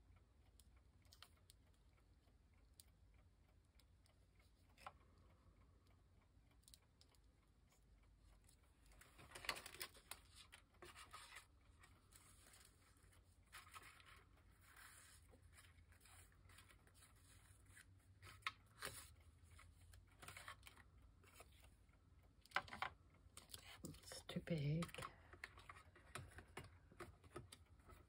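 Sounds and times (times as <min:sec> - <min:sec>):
paper rustling and sliding: 0:09.2 - 0:19.1.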